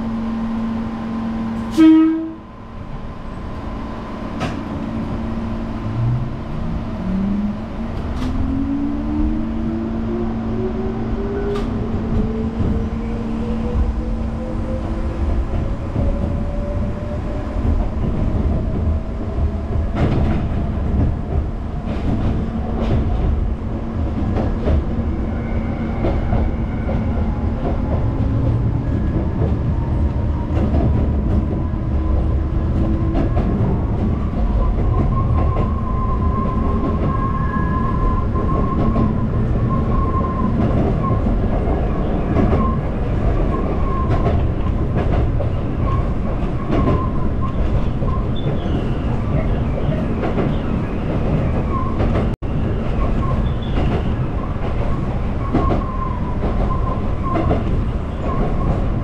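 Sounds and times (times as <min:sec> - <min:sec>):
train horn blast: 0:01.6 - 0:02.5.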